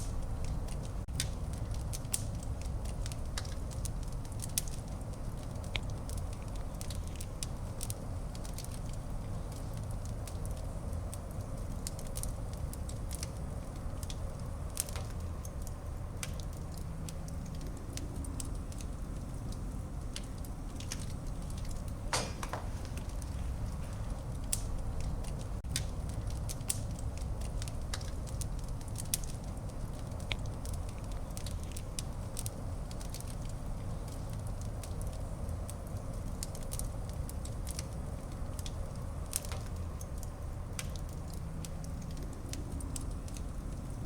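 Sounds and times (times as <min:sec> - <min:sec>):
sharp pops of fire: 0:00.0 - 0:43.9
wood fire crackling: 0:00.0 - 0:44.0
low rumble: 0:13.4 - 0:28.9.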